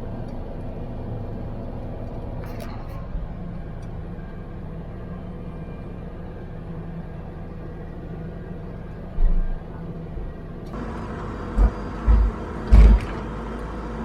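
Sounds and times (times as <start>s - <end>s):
heavy equipment engine humming: 0.0s - 14.0s
short low thump: 11.6s - 13.2s.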